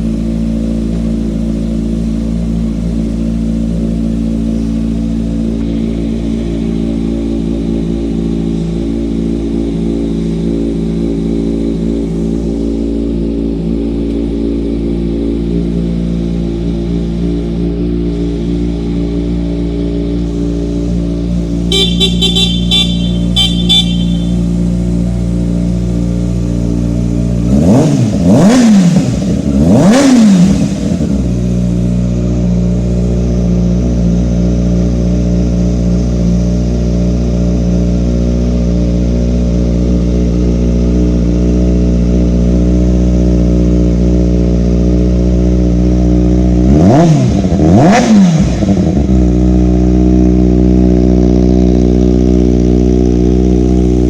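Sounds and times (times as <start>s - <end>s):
motorcycle engine idling and revving: 0.0s - 54.0s
short high beeps: 21.7s - 24.5s.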